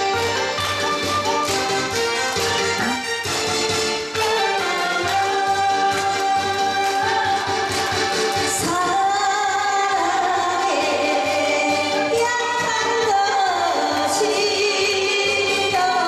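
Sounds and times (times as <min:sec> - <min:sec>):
instrumental accompaniment: 0:00.0 - 0:14.2
woman singing: 0:05.1 - 0:16.0.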